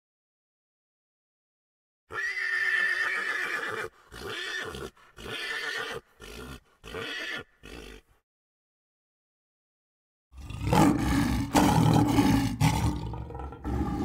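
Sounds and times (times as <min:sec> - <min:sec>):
horse whinnying: 0:02.1 - 0:08.1.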